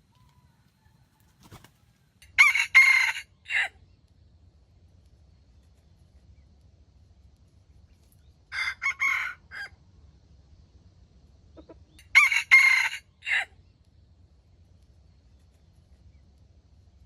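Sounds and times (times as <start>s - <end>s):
rooster crowing: 0.1s - 1.6s, 2.2s - 3.8s, 8.5s - 9.8s, 12.0s - 13.5s.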